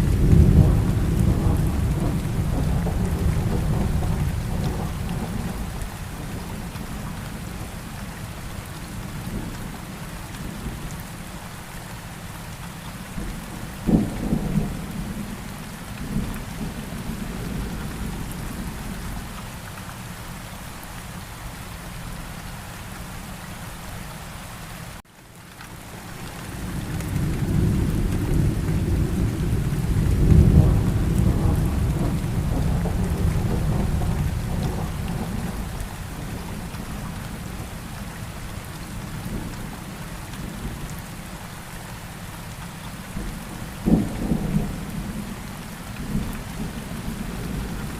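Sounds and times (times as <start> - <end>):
thunder rumbling: 0.0 - 6.9, 13.2 - 19.3, 26.4 - 37.8, 43.2 - 45.4
steady rain: 0.0 - 47.9
sharp thunderclap: 27.1 - 35.6.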